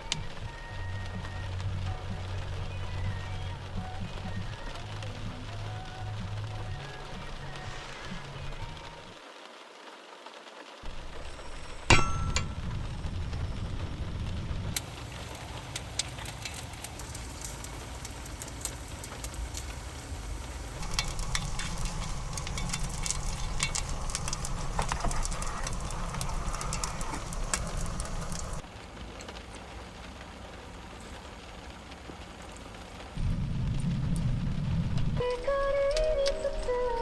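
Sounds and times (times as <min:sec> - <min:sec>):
rain drumming on a vehicle: 0:00.0 - 0:37.0
engine and road rumble: 0:10.9 - 0:28.8, 0:29.9 - 0:35.9.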